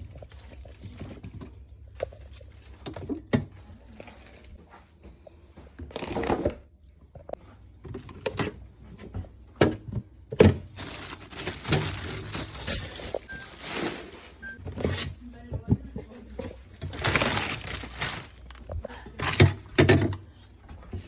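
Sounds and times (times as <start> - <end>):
scraping rustle: 10.8 - 15.2.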